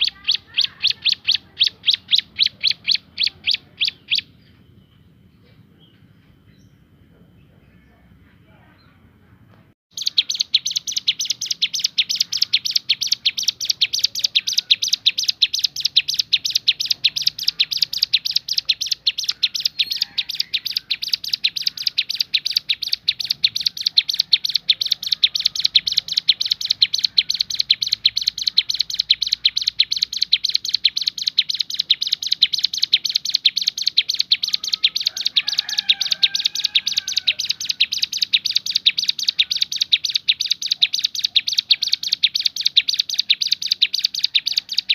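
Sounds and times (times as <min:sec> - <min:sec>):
bird singing rapid high notes: 0:00.0 - 0:04.8, 0:09.9 - 0:44.9.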